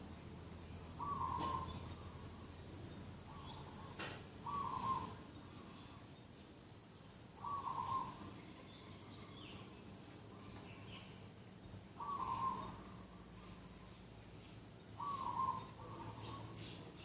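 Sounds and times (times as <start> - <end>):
small birds chirping: 0.1 - 17.0
dove cooing: 1.0 - 2.3, 3.3 - 6.0, 7.4 - 8.2, 12.0 - 13.8, 15.0 - 16.8.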